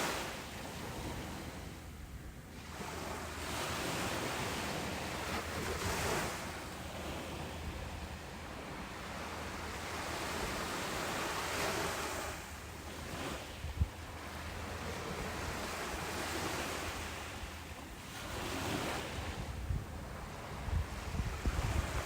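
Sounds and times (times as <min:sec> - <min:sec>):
ocean waves breaking: 0:00.0 - 0:22.0
wind gust on microphone: 0:18.3 - 0:22.0.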